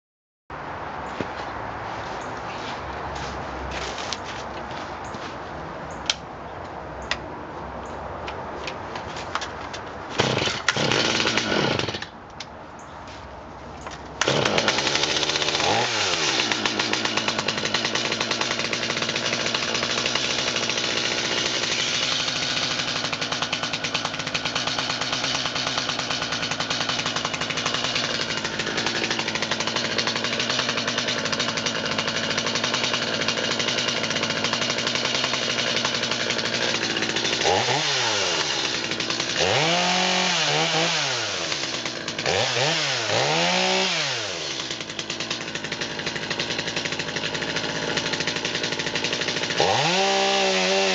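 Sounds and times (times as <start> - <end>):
chainsaw cutting wood: 10.1 - 12.2, 14.2 - 50.9.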